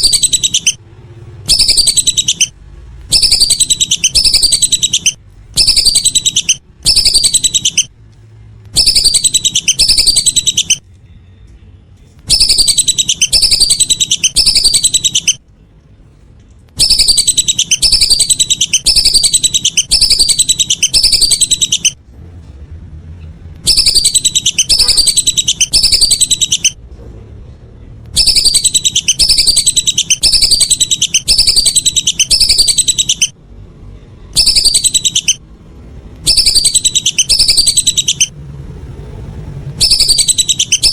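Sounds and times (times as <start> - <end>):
ducks whistling calls: 0.0 - 0.8, 3.1 - 7.9, 8.8 - 10.8, 12.3 - 15.4, 16.8 - 22.0, 23.7 - 26.8, 28.2 - 33.3, 34.4 - 35.4, 36.3 - 38.3, 39.8 - 40.9.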